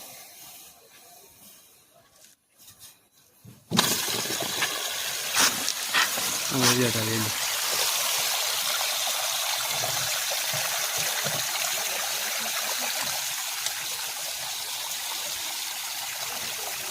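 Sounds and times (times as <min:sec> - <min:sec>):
water running from tank: 0:03.7 - 0:16.9.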